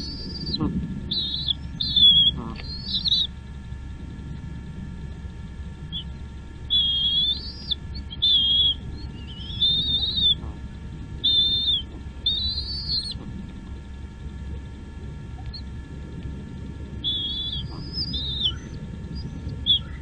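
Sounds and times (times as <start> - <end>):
bird whistled calls: 0.0 - 3.4, 5.9 - 10.5, 11.2 - 13.2, 15.4 - 15.7, 17.0 - 20.0.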